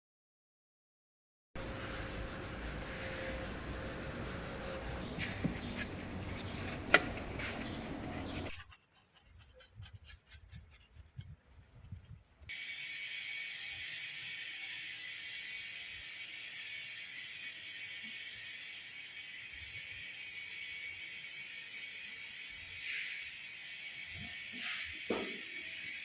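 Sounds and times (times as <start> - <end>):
scrubbing surfaces: 1.6 - 12.2.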